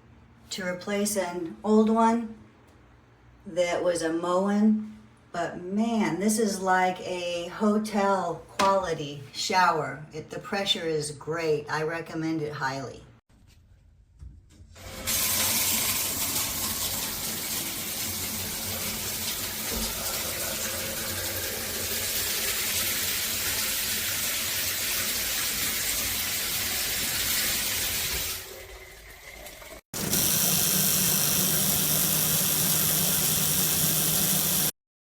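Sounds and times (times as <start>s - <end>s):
shower head spraying water: 30.0s - 34.8s.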